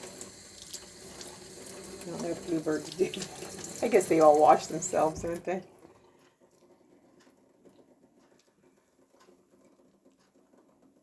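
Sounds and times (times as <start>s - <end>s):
faint light ticks: 6.1s - 10.4s.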